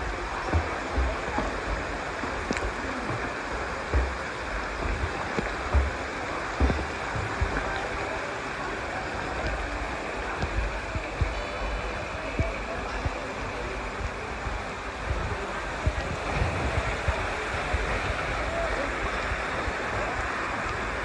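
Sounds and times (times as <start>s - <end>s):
low thumps on microphone: 0.0s - 8.1s
rushing water: 0.0s - 21.0s.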